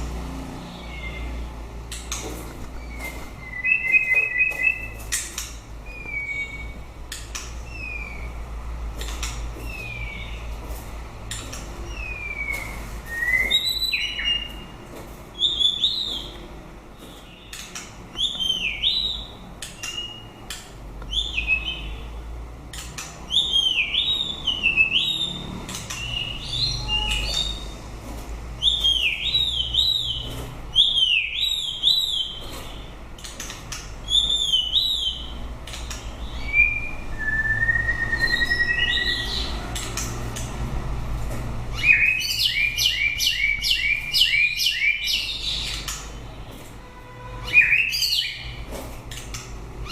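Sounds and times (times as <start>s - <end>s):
sharp bird clicks: 1.8s - 8.3s, 17.1s - 21.7s, 22.7s - 27.7s, 28.6s - 37.1s, 38.0s - 40.6s, 41.8s - 46.2s
bird singing whistled notes: 2.8s - 5.0s, 5.9s - 6.8s, 11.9s - 14.7s, 23.3s - 25.3s, 26.0s - 27.8s, 28.6s - 32.4s, 36.2s - 39.5s, 41.8s - 45.8s, 47.4s - 48.5s.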